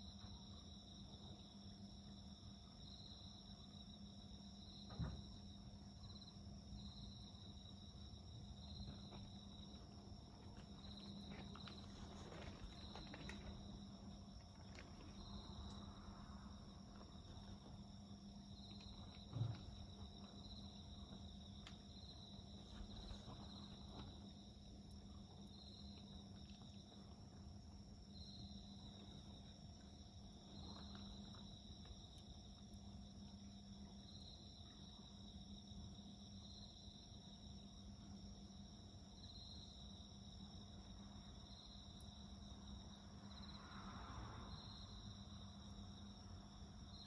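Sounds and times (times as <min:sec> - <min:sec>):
insects chirping: 0:00.0 - 0:47.0
wood fire crackling: 0:08.7 - 0:27.1.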